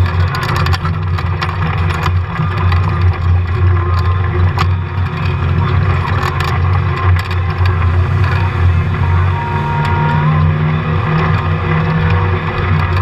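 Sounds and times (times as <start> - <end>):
light rattling ticks: 0.0 - 8.7
engine and drivetrain drone: 0.0 - 13.0
high thin whine: 4.2 - 12.8.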